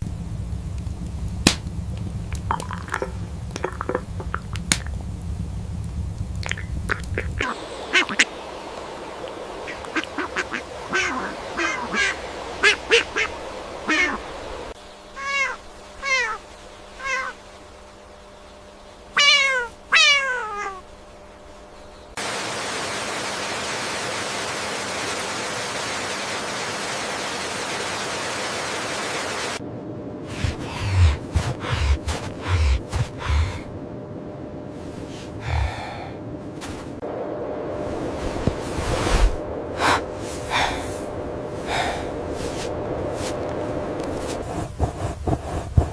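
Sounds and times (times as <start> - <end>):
steady hiss: 0.0 - 33.9, 34.6 - 45.9
sharp animal calls: 6.5 - 8.4, 9.6 - 14.3, 15.1 - 16.4, 17.0 - 17.4, 19.2 - 20.9.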